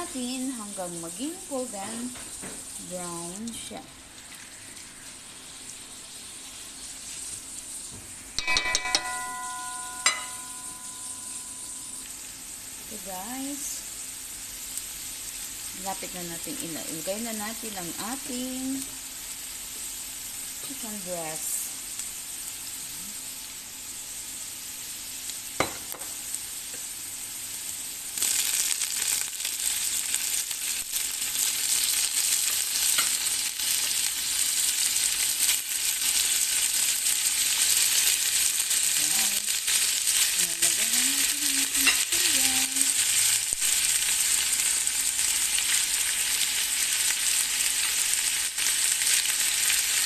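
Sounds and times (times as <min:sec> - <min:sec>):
chicken frying in oil: 0:12.4 - 0:50.0.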